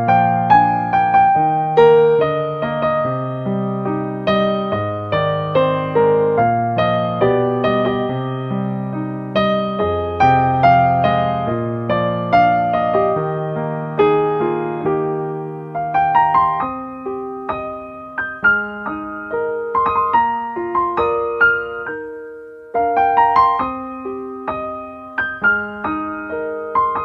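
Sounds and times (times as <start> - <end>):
gentle piano music: 0.0 - 27.0.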